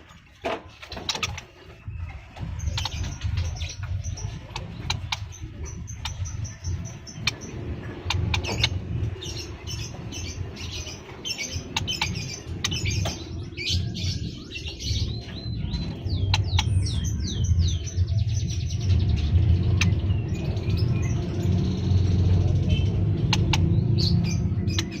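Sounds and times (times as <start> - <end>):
small birds chirping: 0.0 - 25.0
steady low rumble: 0.0 - 25.0
sharp clicks: 23.2 - 23.8.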